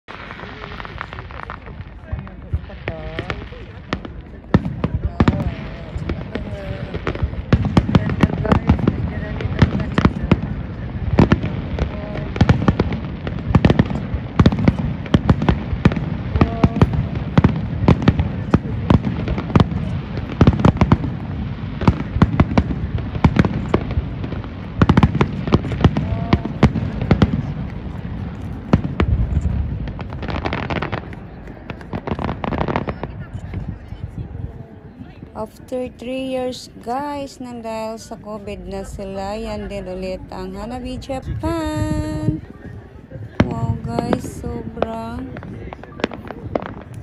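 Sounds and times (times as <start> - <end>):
deep fireworks booms: 0.1 - 47.0
fireworks bangs and crackles: 0.1 - 47.0.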